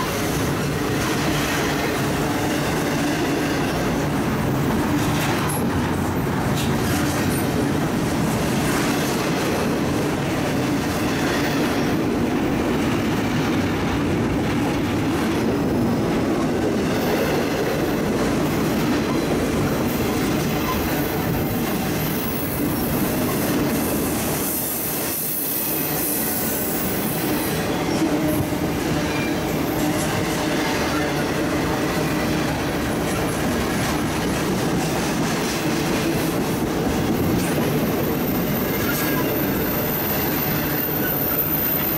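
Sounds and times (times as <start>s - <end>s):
freight train wheels on rail: 0.0s - 41.9s
high wheel squeal: 38.0s - 41.9s.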